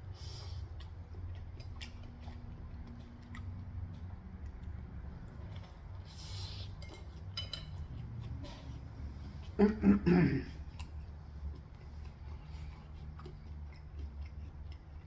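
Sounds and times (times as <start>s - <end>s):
low steady hum: 0.0s - 15.0s
kitchen utensils and dishes clinking: 6.8s - 7.9s.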